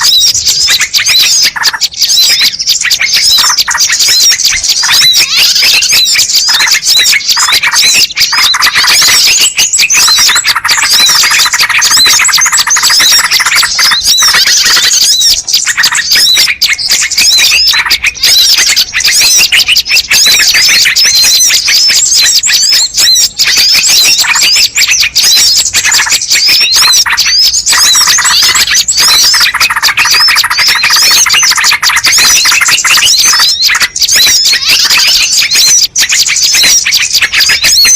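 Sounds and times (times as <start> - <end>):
small birds chirping and trilling: 0.0 - 37.9.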